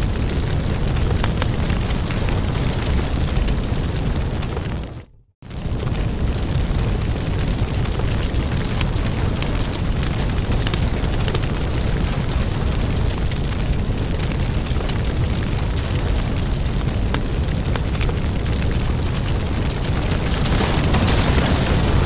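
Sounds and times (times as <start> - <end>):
fire crackling and popping: 0.0 - 22.0
wood fire burning: 0.0 - 22.0.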